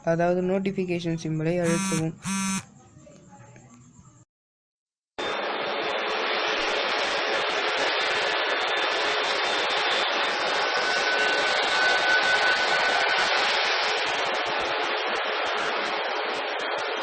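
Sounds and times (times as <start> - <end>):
jet engines rushing: 5.2 - 17.0.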